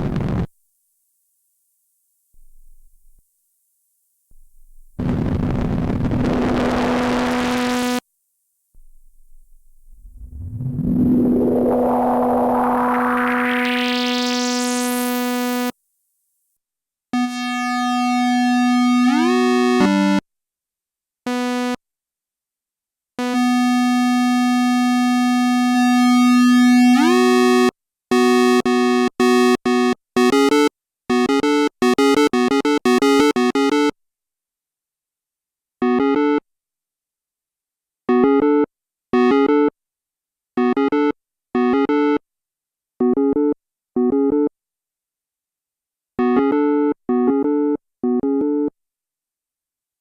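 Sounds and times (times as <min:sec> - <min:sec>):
analog synthesizer notes: 0:09.3 - 0:15.0.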